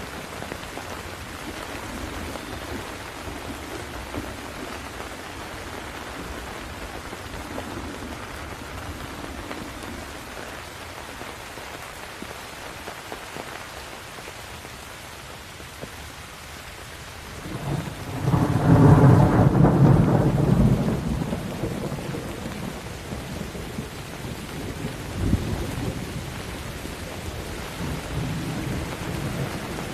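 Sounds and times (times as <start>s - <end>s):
rain falling: 0.0s - 29.9s
thunder rumbling: 17.3s - 29.9s.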